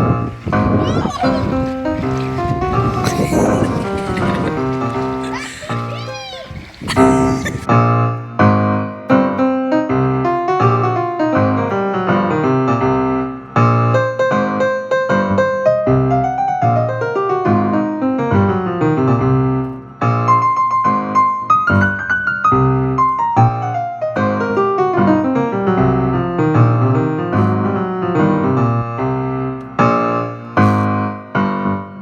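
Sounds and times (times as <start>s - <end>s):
piano music: 7.0s - 32.0s.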